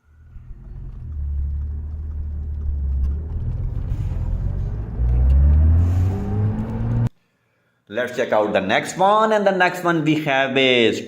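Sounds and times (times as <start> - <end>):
truck engine rumbling: 0.0 - 7.1.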